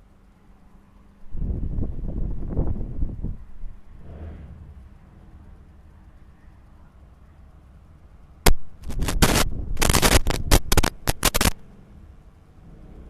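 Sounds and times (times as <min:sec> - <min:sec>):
faint low hum: 0:00.0 - 0:13.0
crackling static: 0:05.7 - 0:11.7
sharp click: 0:08.4 - 0:11.6.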